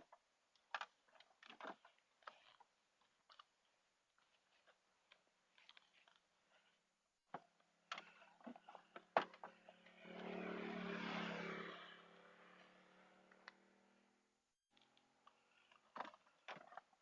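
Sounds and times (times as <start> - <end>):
vehicle passing by: 9.5 - 14.3.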